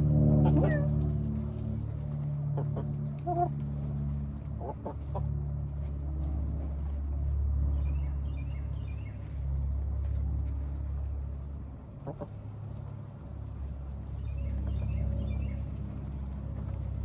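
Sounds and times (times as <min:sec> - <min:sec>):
steady low hum: 0:00.0 - 0:17.0
chickens clucking: 0:00.2 - 0:06.8, 0:11.5 - 0:17.0.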